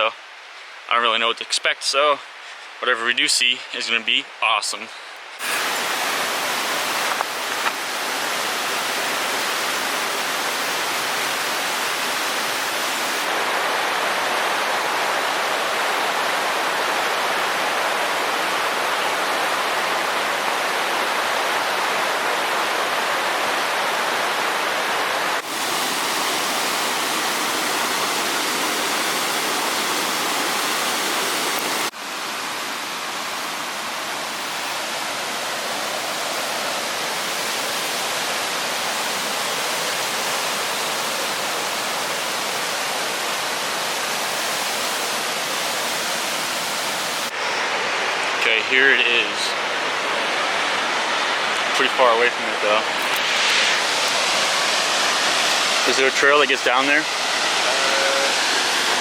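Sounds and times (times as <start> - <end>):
rushing water: 4.5 - 59.0.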